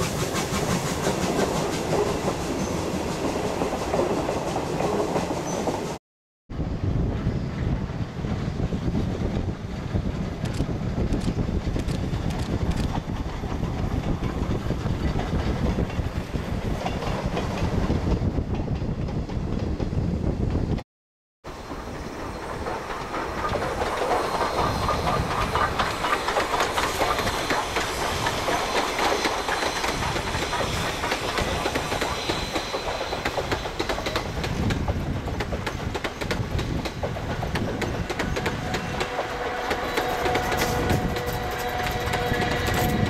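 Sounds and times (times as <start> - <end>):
train wheels clattering: 21.7 - 43.0.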